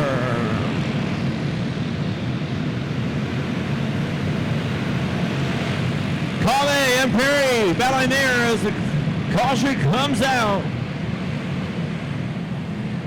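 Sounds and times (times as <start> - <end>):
racing kart engines droning: 0.0 - 1.2.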